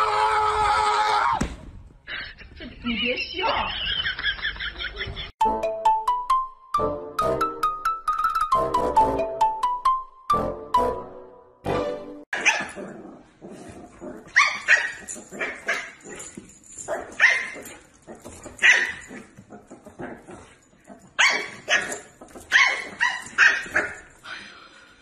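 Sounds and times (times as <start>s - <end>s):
dog barking: 12.4s - 12.8s, 14.3s - 16.0s, 18.6s - 19.2s, 21.2s - 24.1s.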